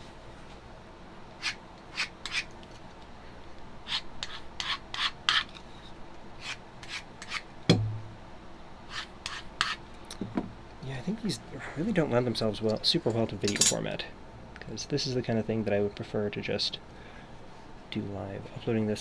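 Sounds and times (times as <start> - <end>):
knife blade scraping on strop: 1.4 - 2.5, 6.4 - 8.0
sharp knock: 7.7 - 8.2.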